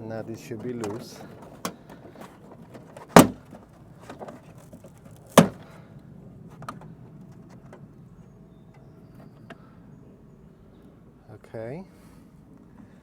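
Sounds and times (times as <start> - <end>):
loud sharp knocks: 3.2 - 3.4.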